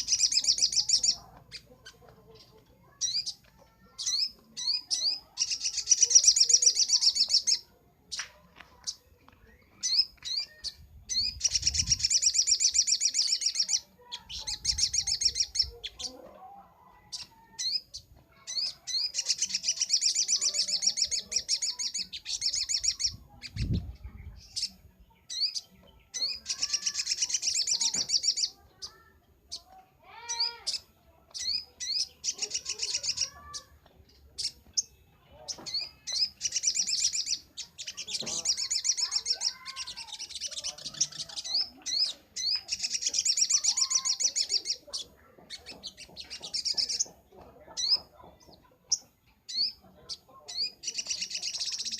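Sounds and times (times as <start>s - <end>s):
bird chattering trills: 0.0s - 8.2s, 9.7s - 16.2s, 17.0s - 51.9s.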